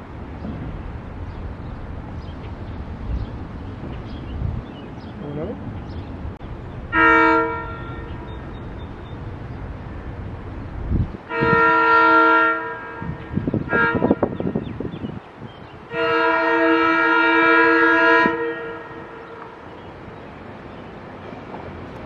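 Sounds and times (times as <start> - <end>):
train rumbling: 0.0 - 22.0
train horn blasts: 6.9 - 8.7, 11.2 - 15.0, 15.8 - 19.8.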